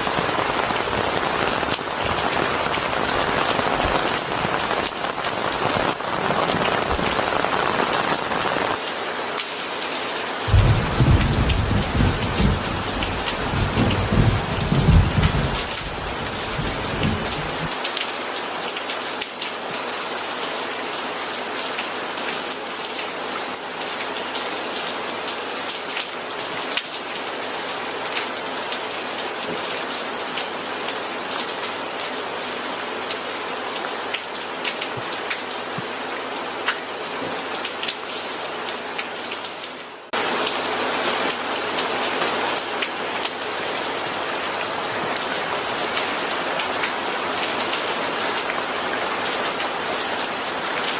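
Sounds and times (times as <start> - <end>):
steady rain falling: 0.0 - 50.9
low thunder rumble: 10.5 - 17.7
raindrops ticking: 10.5 - 17.8.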